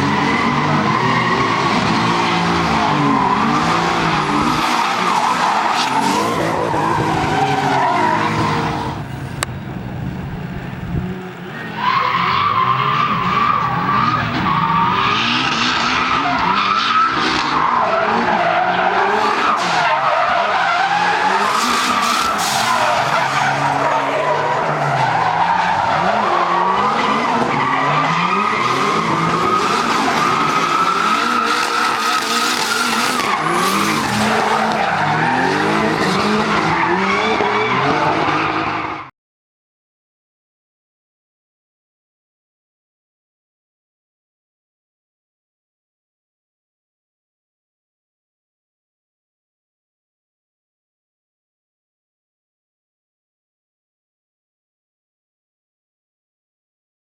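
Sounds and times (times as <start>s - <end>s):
car engine revving: 0.0s - 38.9s
tyres squealing: 19.6s - 36.4s.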